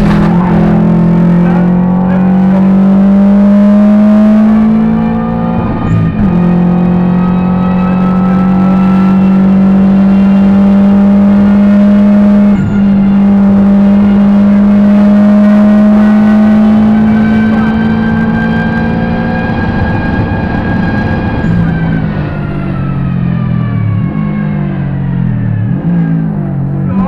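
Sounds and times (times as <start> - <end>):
car engine pulling hard: 0.0 - 27.0.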